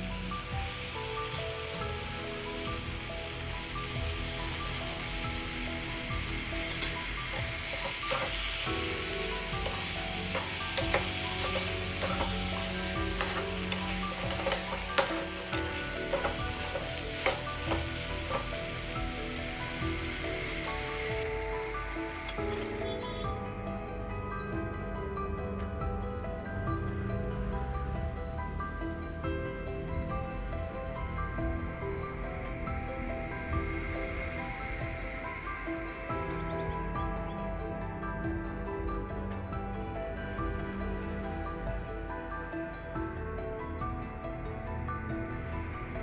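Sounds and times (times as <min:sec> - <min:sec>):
food sizzling in a pan: 0:00.0 - 0:23.2
utensil knocking and scraping pan: 0:06.6 - 0:18.8.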